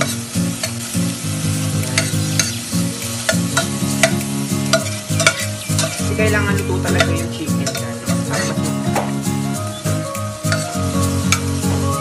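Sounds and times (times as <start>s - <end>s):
chicken sizzling in oil: 0.0s - 12.0s
spatula scraping a pot: 4.8s - 6.0s.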